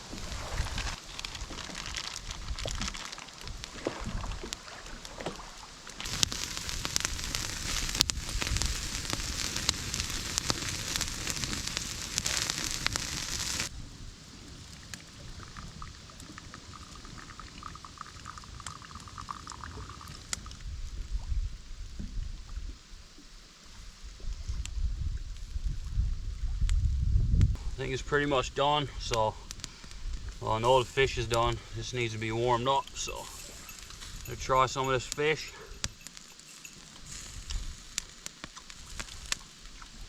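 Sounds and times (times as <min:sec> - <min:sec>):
wind rumbling on microphone: 0:00.0 - 0:04.4, 0:06.0 - 0:23.0, 0:23.9 - 0:31.8
campfire crackling: 0:00.0 - 0:20.5, 0:27.6 - 0:40.0
sausages sizzling on a grill: 0:06.0 - 0:13.7, 0:29.0 - 0:39.5.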